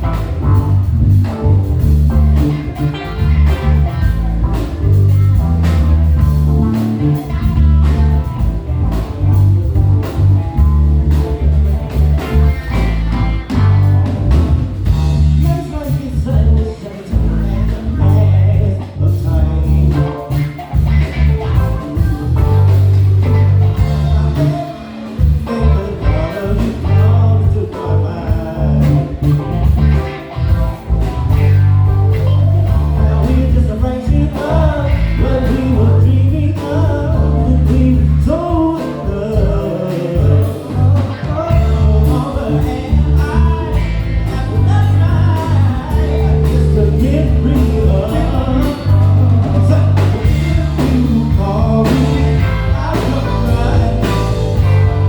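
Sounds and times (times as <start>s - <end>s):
drums: 0.0s - 55.0s
guitar: 0.0s - 55.0s
heavy bass line: 0.0s - 55.0s
keyboard: 0.0s - 55.0s
person singing: 14.9s - 30.6s, 32.2s - 55.0s.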